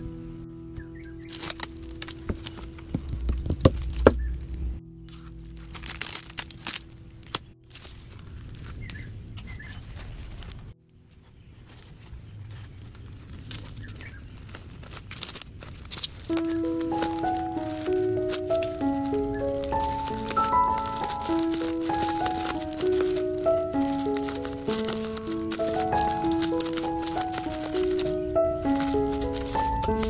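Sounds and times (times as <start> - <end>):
tissue paper crinkling and tearing: 12.5 - 30.0.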